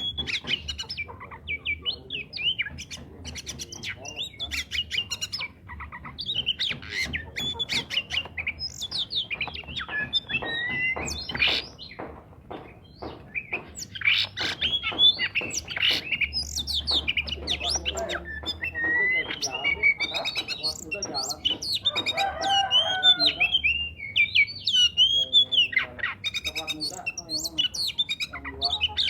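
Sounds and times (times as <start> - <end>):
harsh squawky bird chatter: 0.0 - 29.0.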